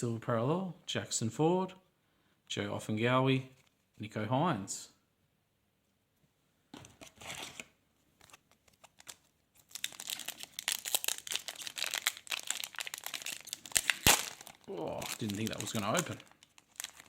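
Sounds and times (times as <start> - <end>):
foil wrapper crinkling and tearing: 8.2 - 17.0.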